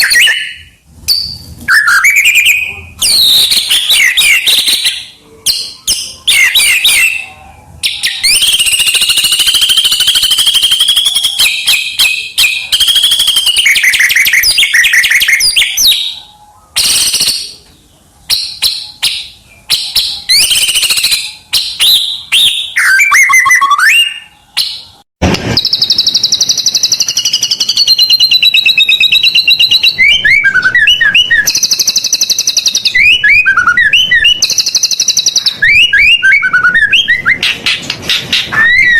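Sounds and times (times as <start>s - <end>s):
songbird singing varied song: 25.6s - 37.4s.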